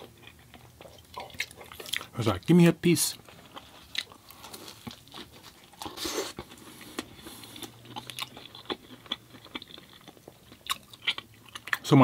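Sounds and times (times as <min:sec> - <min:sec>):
person chewing and biting: 0:00.0 - 0:02.2, 0:03.2 - 0:11.8.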